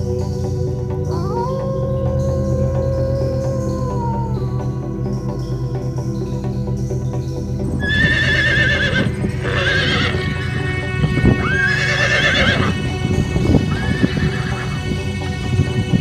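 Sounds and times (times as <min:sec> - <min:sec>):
background music: 0:00.0 - 0:16.0
horse whinnying: 0:07.8 - 0:10.5, 0:11.4 - 0:12.8, 0:13.7 - 0:14.8.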